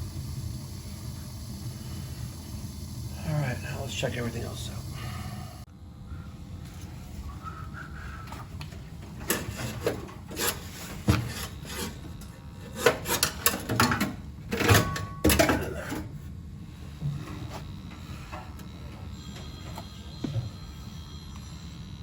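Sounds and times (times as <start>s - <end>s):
tools knocking and scraping: 9.1s - 16.0s.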